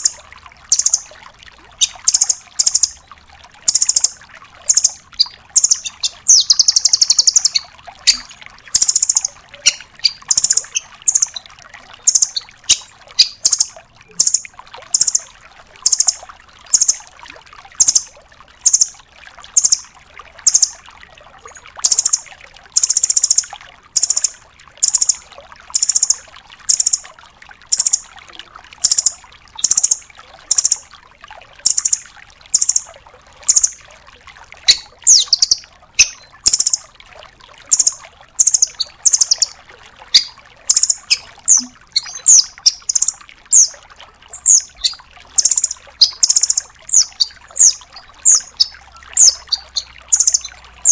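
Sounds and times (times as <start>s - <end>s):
faint flowing water: 0.0s - 50.9s
nuthatch calling: 0.7s - 1.0s, 1.8s - 3.0s, 3.7s - 4.1s, 4.7s - 11.4s, 12.0s - 15.2s, 28.8s - 30.8s, 31.7s - 32.0s, 32.6s - 32.8s, 34.7s - 36.8s, 37.7s - 39.5s, 40.1s - 43.7s, 44.3s - 50.9s.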